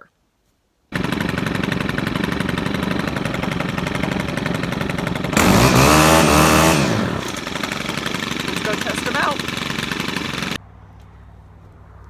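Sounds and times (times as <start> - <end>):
farm machine engine rattling and revving: 1.0 - 10.6.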